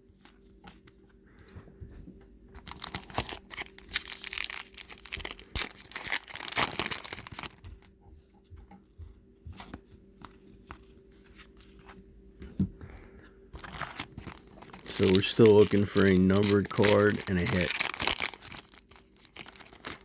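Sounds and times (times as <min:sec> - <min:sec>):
wrapper tearing and crinkling: 0:02.6 - 0:07.9, 0:13.6 - 0:20.0.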